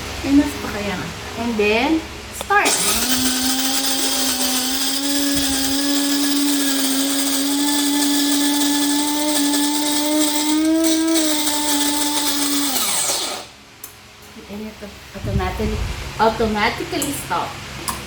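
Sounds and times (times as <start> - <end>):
coffee grinder motor humming: 2.4 - 13.6.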